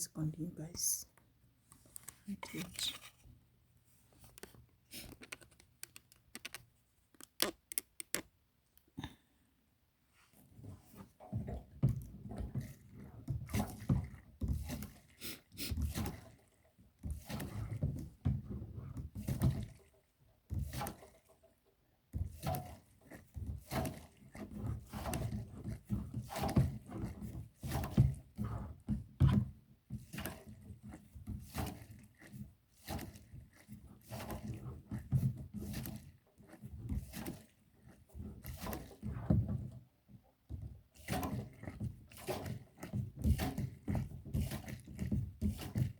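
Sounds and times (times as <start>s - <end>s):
hand siphon pump strokes: 10.2s - 21.5s, 22.2s - 39.8s, 40.5s - 45.9s.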